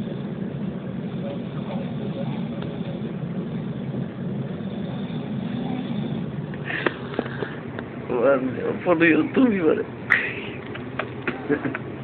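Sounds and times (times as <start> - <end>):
train rumbling inside carriage: 0.0 - 9.5.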